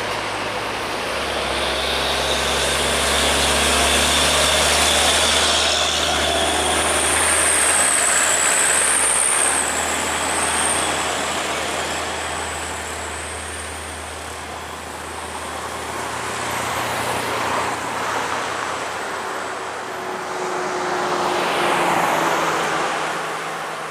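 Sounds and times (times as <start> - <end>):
diesel trucks passing: 0.0 - 23.9
high wavering whine: 0.1 - 16.2.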